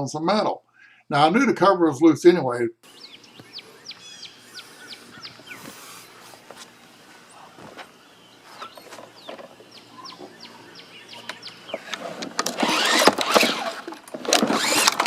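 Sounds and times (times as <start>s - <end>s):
bird chirps: 2.9s - 6.5s, 7.2s - 12.0s
mower engine cranking: 11.0s - 15.0s
recoil starter rope pulled: 11.7s - 15.0s.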